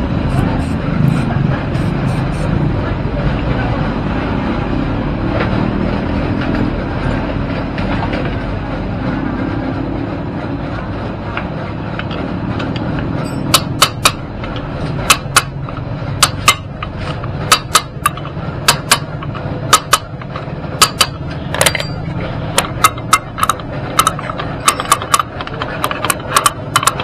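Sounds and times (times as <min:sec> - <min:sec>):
steady low rumble: 0:00.0 - 0:24.8
hammer striking metal: 0:13.2 - 0:14.3, 0:14.9 - 0:27.0.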